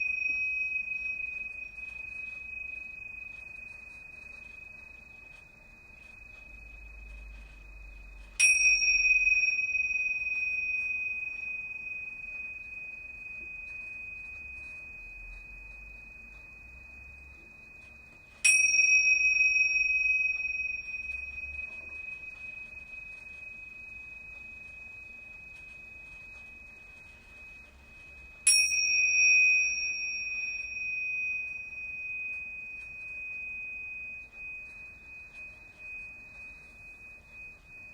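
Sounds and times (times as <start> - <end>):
high-pitched chime ringing: 0.0 - 37.9.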